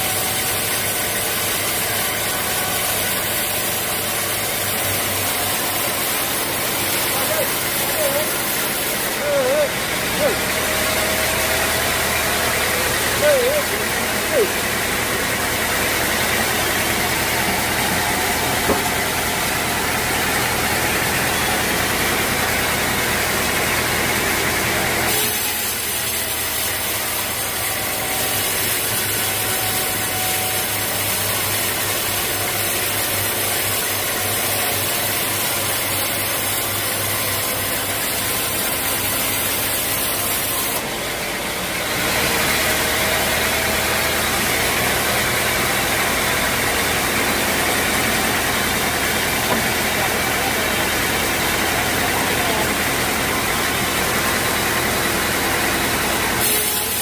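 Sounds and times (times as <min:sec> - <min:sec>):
sawmill machinery humming: 0:00.0 - 0:57.0.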